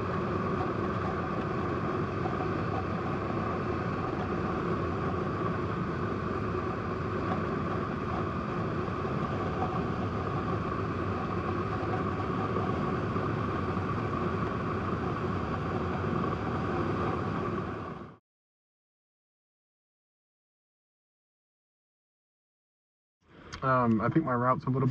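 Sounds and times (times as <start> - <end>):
motorcycle engine cruising: 0.0 - 17.8
wind and road noise: 0.0 - 18.2.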